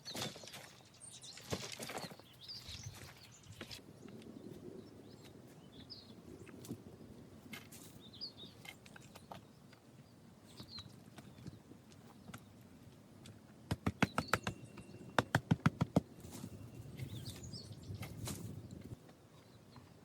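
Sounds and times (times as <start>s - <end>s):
birds chirping: 0.0s - 13.0s, 13.7s - 20.0s
rapid sharp knocks: 13.7s - 14.6s, 15.2s - 16.1s.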